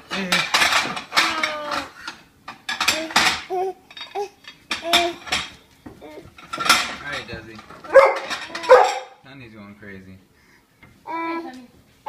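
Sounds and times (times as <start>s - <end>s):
dishes and cutlery clattering: 0.1s - 5.6s, 6.2s - 9.2s.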